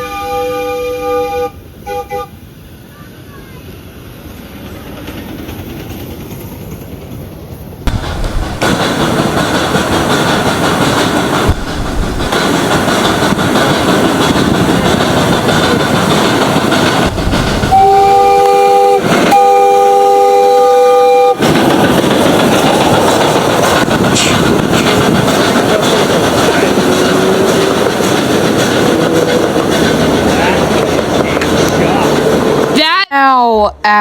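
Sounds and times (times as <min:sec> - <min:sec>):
miniature train rumble and clatter: 0:02.9 - 0:33.0
locomotive chime whistle: 0:17.7 - 0:21.4.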